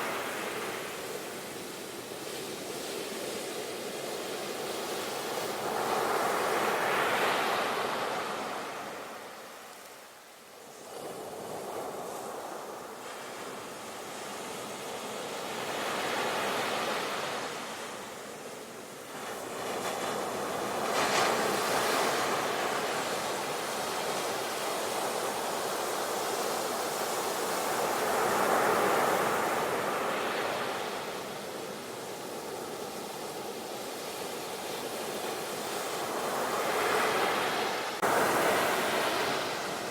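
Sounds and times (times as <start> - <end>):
sea waves breaking: 35.8 - 39.9.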